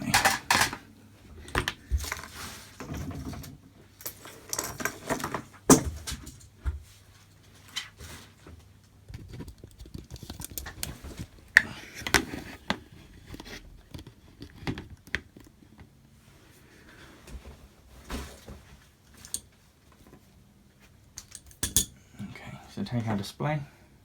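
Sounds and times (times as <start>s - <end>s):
equipment clicking and knocking: 0.0s - 0.8s.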